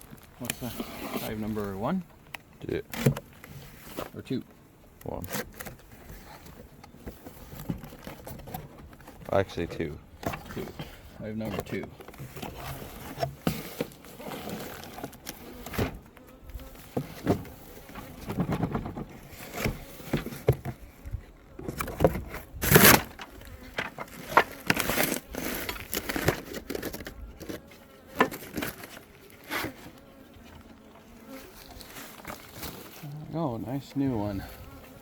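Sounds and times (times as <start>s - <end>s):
wooden hive boxes knocking and scraping: 0.0s - 4.4s, 5.0s - 35.0s
bees buzzing: 22.6s - 35.0s.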